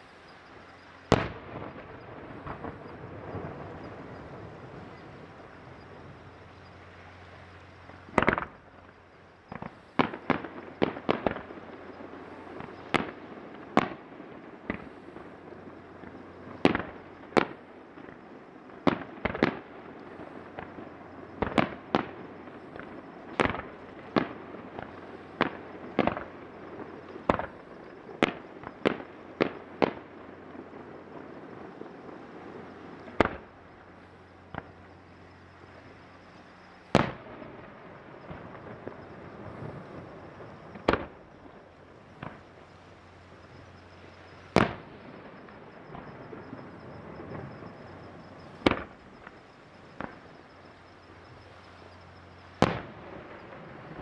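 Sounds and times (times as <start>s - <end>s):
firework shells bursting: 0.0s - 6.8s
steady rumble: 0.0s - 54.0s.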